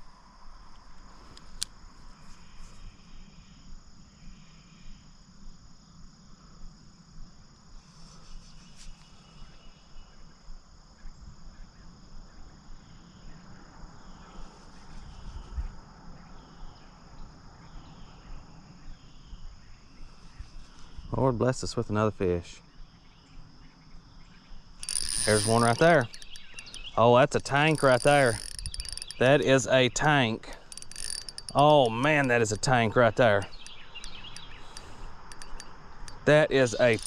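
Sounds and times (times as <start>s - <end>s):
shrill insect chorus: 0.0s - 37.0s
faint clicks: 24.8s - 29.4s, 30.5s - 37.0s.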